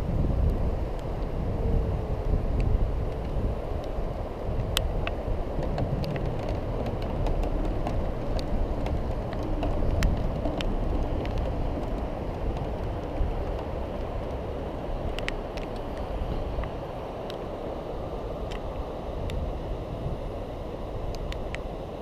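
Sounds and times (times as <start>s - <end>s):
scooter tyres rumbling on paving: 0.0s - 21.7s
sharp clicks and rattles: 4.6s - 14.4s.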